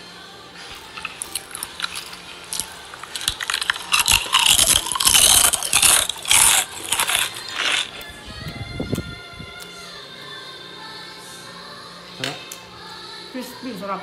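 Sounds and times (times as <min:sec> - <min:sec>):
crispy pig skin crunching: 0:00.9 - 0:08.1.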